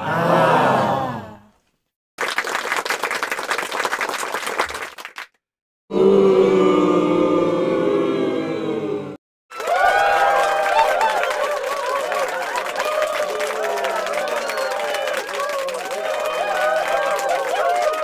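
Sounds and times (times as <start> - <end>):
crowd crying out: 0.0 - 1.3, 9.5 - 18.0
audience applause: 2.2 - 5.3, 9.5 - 18.0.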